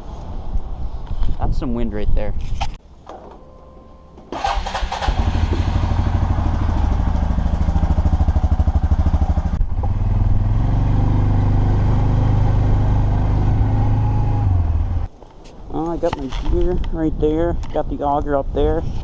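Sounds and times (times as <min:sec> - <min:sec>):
atv engine running: 0:04.4 - 0:15.1.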